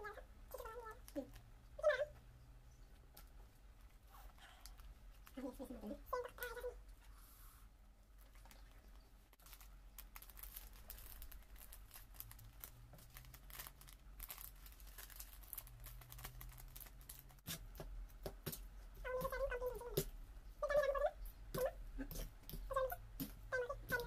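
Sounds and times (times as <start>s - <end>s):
plastic packaging crinkling: 8.2s - 17.8s.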